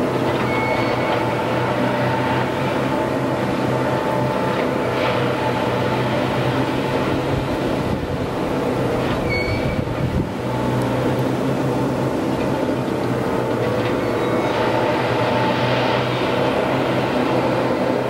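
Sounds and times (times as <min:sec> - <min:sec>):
machinery noise: 0:00.0 - 0:18.0
train engine hum: 0:00.0 - 0:18.0
high squeal: 0:00.4 - 0:01.3, 0:09.2 - 0:10.0.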